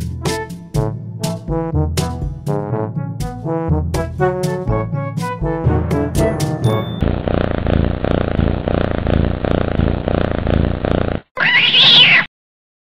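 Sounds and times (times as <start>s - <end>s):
pulsing animal-like rumbling: 7.0s - 11.8s
bright rising and falling call: 11.4s - 12.3s.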